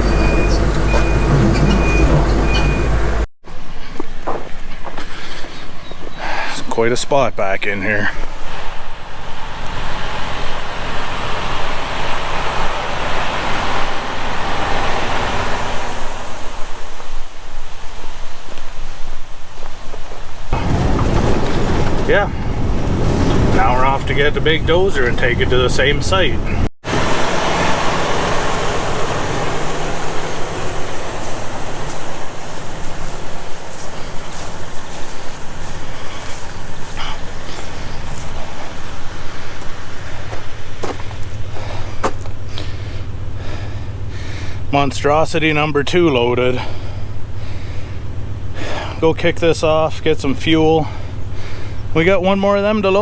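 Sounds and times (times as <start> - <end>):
diesel engine running: 0.0 - 3.3, 8.1 - 17.0, 20.5 - 53.0
broad rushing noise: 20.5 - 44.8.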